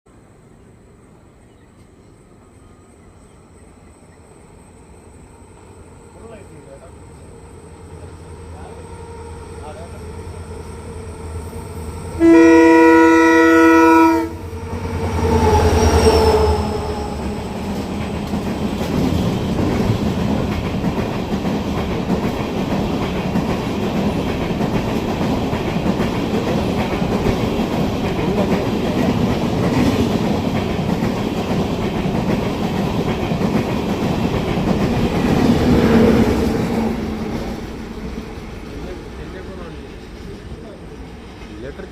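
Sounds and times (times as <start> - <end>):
train rumbling and clacking on rails: 0.5 - 41.9
train horn blast: 12.0 - 17.4.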